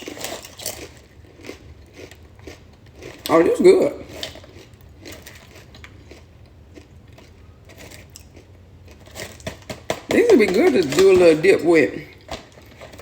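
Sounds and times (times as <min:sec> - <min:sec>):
low steady hum: 0:00.0 - 0:13.0
person chewing crunchy crackers: 0:00.0 - 0:13.0.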